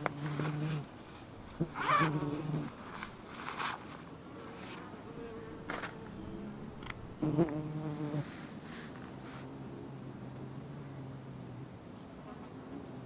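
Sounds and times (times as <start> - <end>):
flying insect buzzing: 0.0 - 3.3, 4.8 - 8.3.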